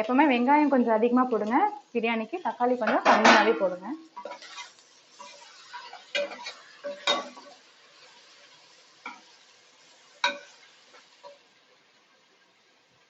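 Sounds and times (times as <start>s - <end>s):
faint sizzle: 0.0s - 13.0s
spoon stirring in a pan: 2.8s - 11.5s.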